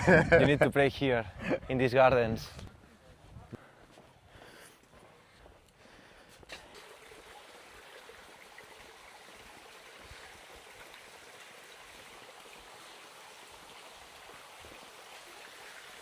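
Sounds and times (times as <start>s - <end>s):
trickle of running spring water: 6.3s - 16.0s.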